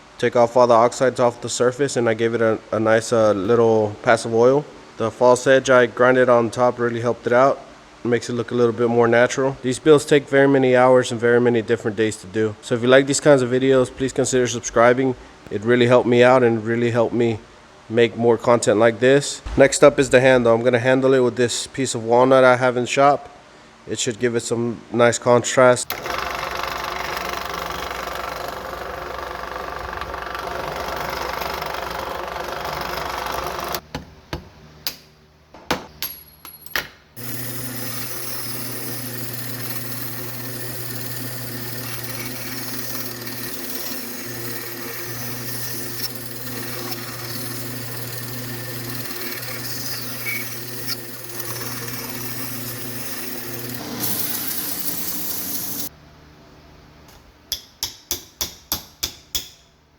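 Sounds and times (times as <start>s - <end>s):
sharp knocks: 19.5s - 20.6s
motor humming: 25.9s - 33.8s, 37.2s - 55.9s
power tool machine noise: 25.9s - 33.8s, 37.2s - 55.9s.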